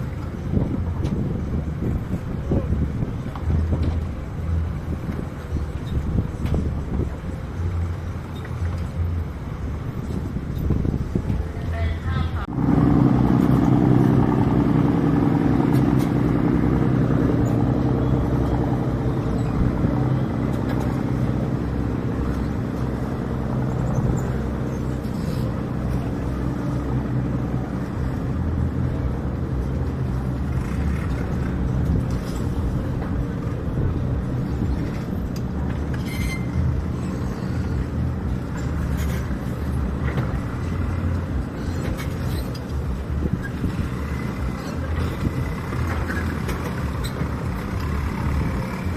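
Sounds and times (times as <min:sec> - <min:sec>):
deeper rumble: 0:00.0 - 0:48.9
diesel boat engine droning: 0:00.0 - 0:48.9.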